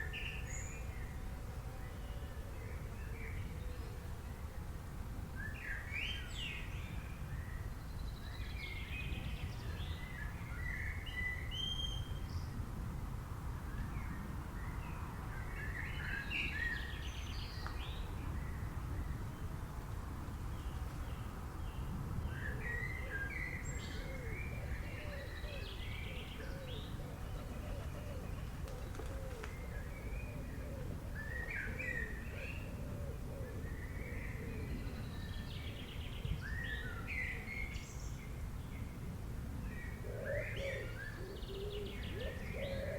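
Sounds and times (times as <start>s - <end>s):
wild birds chirping: 20.5s - 39.0s, 39.8s - 42.9s.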